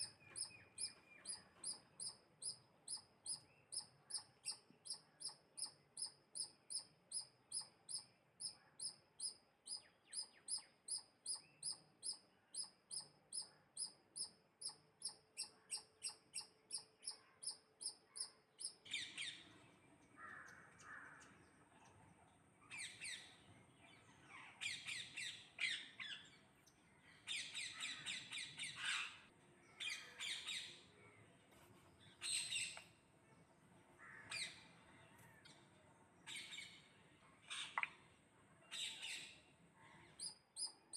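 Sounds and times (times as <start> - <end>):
birds squawking and chirping: 27.2 - 30.8.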